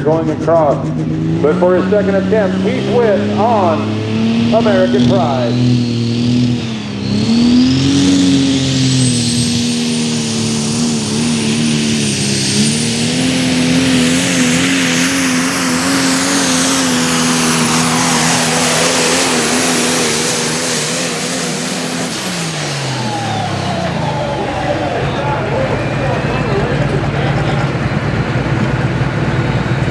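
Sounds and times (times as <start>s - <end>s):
diesel truck engine at full throttle: 0.0s - 29.9s
turbo whistle: 4.5s - 14.2s, 16.2s - 27.0s.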